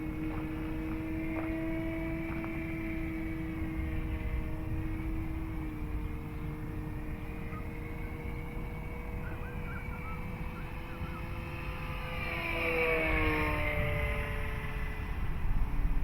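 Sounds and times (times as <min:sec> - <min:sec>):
model plane motor whine: 0:00.0 - 0:16.0
faint bird chirps: 0:09.2 - 0:11.4.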